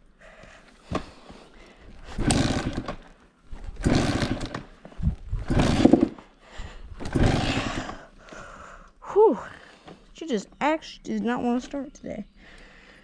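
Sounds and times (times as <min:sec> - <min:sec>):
engine turning over: 0:02.0 - 0:06.3, 0:06.9 - 0:08.1
dirt bike kick-start attempts: 0:02.0 - 0:08.1.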